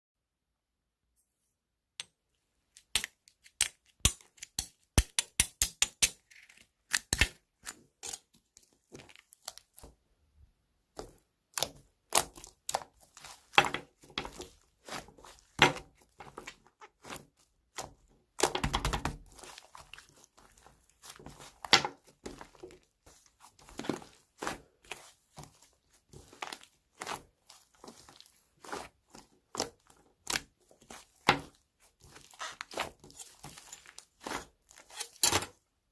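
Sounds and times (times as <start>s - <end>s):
crinkling tearing rustle: 19.0s - 35.6s.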